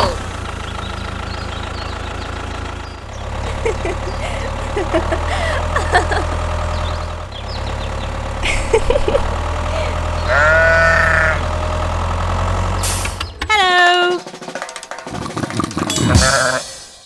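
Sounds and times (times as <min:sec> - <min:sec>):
tractor engine droning: 0:00.0 - 0:14.0
drawn-out bleat-like call: 0:10.0 - 0:11.6, 0:16.1 - 0:16.7.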